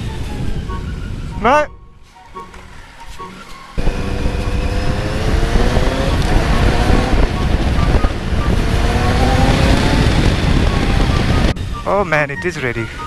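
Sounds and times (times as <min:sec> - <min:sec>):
wind noise on microphone: 0:00.0 - 0:02.8, 0:03.8 - 0:13.0
motorcycle engine accelerating: 0:03.8 - 0:11.6.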